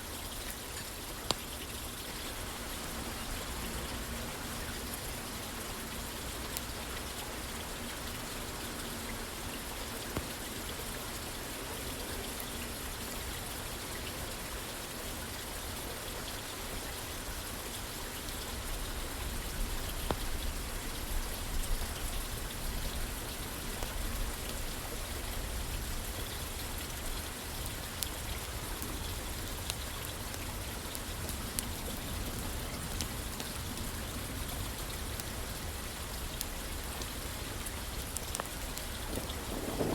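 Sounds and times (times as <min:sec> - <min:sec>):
rain falling on a roof: 0:00.0 - 0:39.9
small clicks and snaps: 0:00.8 - 0:01.5, 0:20.0 - 0:20.4, 0:37.7 - 0:39.9.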